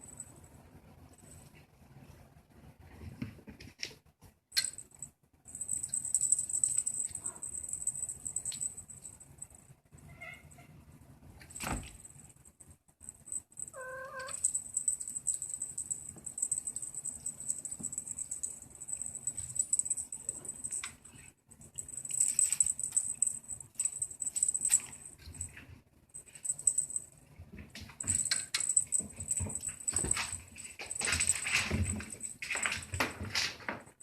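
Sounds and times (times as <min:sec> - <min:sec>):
scratching and rustling: 0:13.0 - 0:34.0
kitten meowing: 0:13.7 - 0:14.4.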